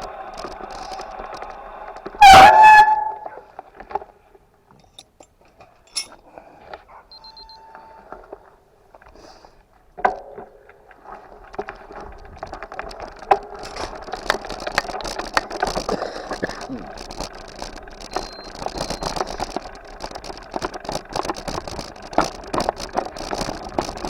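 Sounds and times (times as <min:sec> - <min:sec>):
bike rattling and knocking: 0:00.0 - 0:04.1, 0:10.0 - 0:24.0.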